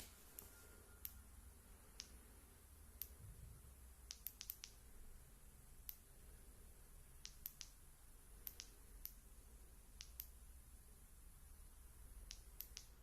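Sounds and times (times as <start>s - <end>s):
faint high-pitched ticks: 4.1s - 4.8s, 8.4s - 9.2s, 10.0s - 10.4s, 12.2s - 13.0s.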